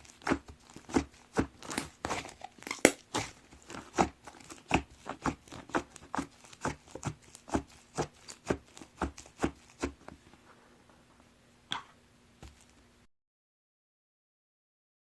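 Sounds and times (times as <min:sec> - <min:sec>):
slime squishing with clicks: 0:00.1 - 0:10.0.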